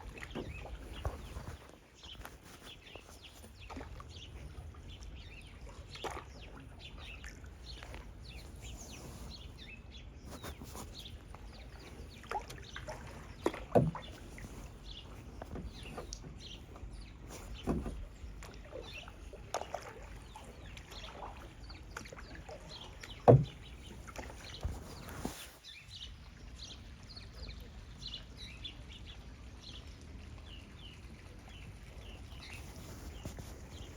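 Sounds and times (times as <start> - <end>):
paddle knocks: 0.0 - 9.4, 10.3 - 25.6
paddle splashing water: 0.0 - 29.0, 29.7 - 33.9
birds calling: 0.0 - 29.1.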